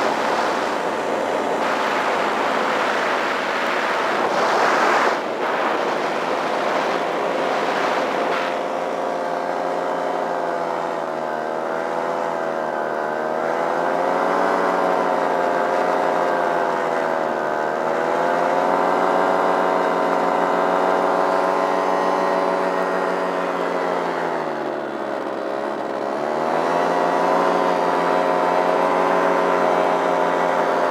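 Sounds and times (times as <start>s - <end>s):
wind noise: 0.0s - 9.0s
paramotor engine running: 0.0s - 30.9s.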